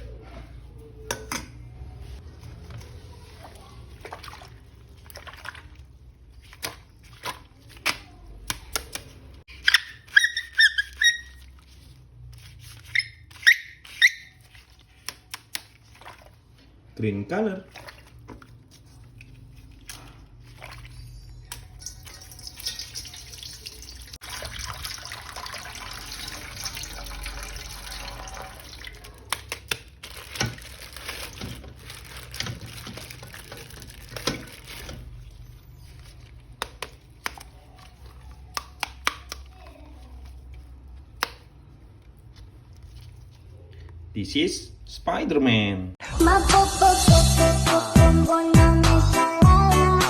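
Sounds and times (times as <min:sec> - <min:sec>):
water running and splashing: 0:03.2 - 0:07.8, 0:15.6 - 0:16.7, 0:17.6 - 0:21.1, 0:21.7 - 0:29.4.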